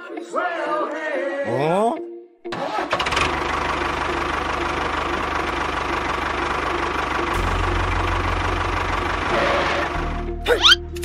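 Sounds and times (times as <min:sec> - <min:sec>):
tractor engine running: 0:02.5 - 0:11.0.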